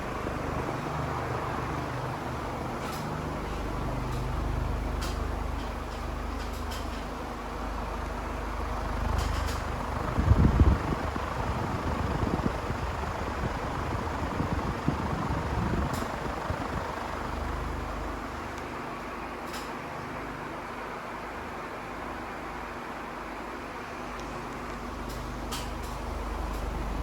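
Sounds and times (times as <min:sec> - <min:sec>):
ceiling fan running: 0:00.0 - 0:27.0.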